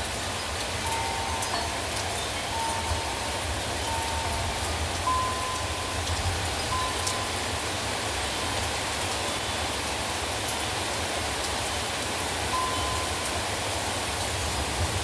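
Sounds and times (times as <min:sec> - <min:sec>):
heavy rain falling: 0:00.0 - 0:15.0
rain drop taps: 0:00.8 - 0:07.7.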